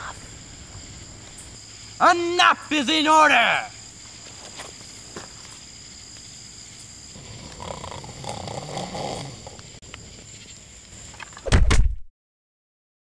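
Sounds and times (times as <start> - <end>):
high insect drone: 0.0 - 11.5
low rough vocal sound: 7.2 - 9.6.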